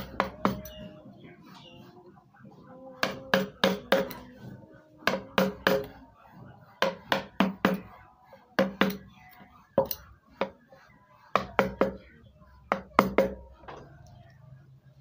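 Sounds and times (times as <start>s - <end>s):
mallet striking chisel into wood: 3.0s - 4.2s, 5.0s - 5.9s, 12.7s - 13.4s.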